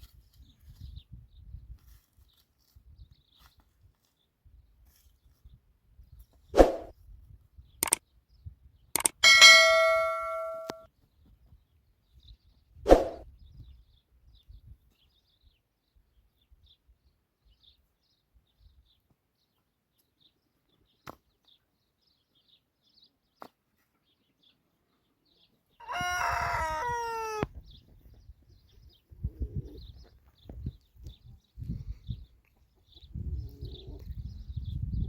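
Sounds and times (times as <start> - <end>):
short clicks: 9.0 - 10.8
rooster crowing: 25.8 - 27.5.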